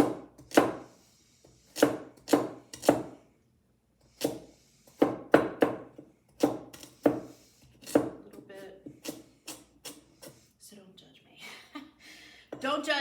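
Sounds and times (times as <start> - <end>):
knife chopping on cutting board: 0.0 - 0.9, 1.5 - 3.2, 4.2 - 10.4.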